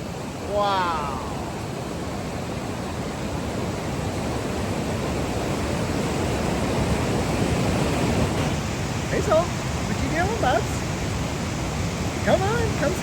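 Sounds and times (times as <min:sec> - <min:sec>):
whitewater rapids rushing: 0:00.0 - 0:13.0.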